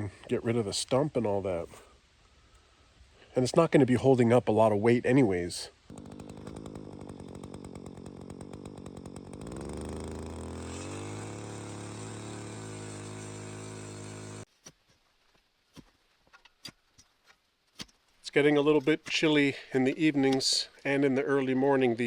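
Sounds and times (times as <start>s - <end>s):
small engine revving: 5.9s - 14.5s.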